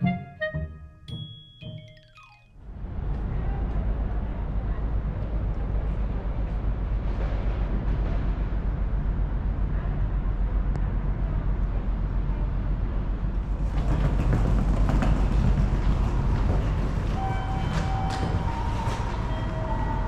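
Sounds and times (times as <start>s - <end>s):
vehicle rumbling in motion: 2.6s - 20.0s
clatter: 13.4s - 19.2s.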